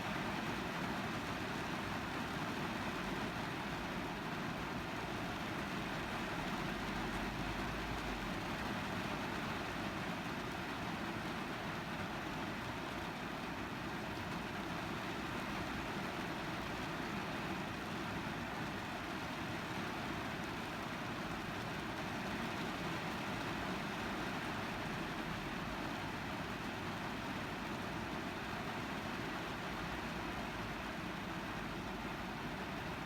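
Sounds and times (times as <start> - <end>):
rain on a car roof: 0.0 - 33.0.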